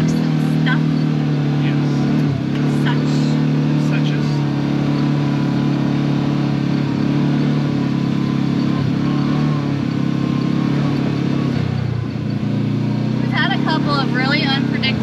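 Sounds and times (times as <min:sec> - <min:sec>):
utility vehicle engine running: 0:00.0 - 0:15.0.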